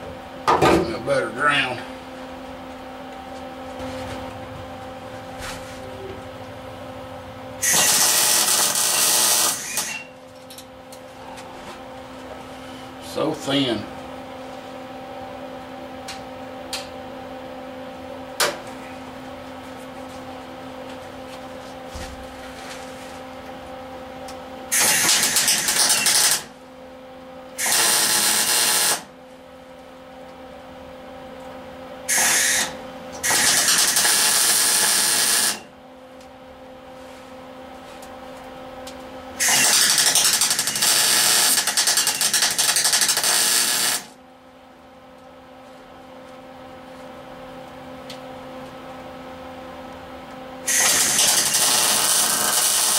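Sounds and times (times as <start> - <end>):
steady low hum: 0.0 - 52.9
welder arc crackling on sheet metal: 7.6 - 10.1, 24.7 - 26.5, 27.6 - 29.1, 32.1 - 35.6, 39.4 - 44.2, 50.7 - 52.9.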